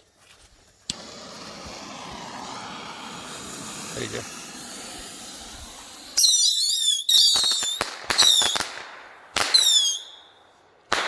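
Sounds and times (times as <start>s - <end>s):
bottle rocket whistles: 0.9s - 8.6s, 9.5s - 10.3s.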